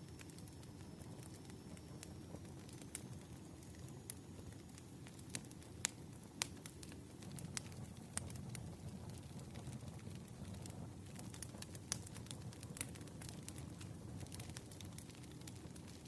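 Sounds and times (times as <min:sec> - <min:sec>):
fire popping: 0:00.0 - 0:16.0
burning logs rumbling: 0:00.1 - 0:16.0.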